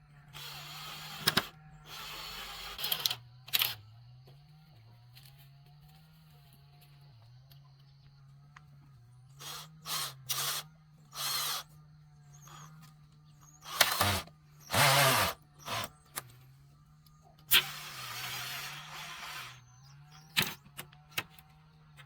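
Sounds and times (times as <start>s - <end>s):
tool rasping bamboo: 9.4s - 10.6s, 11.2s - 11.7s, 13.6s - 16.0s, 17.5s - 19.7s.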